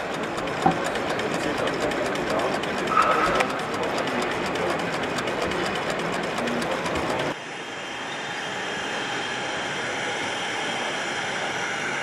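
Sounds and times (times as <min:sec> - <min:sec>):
model train clicking on track: 0:00.0 - 0:07.4.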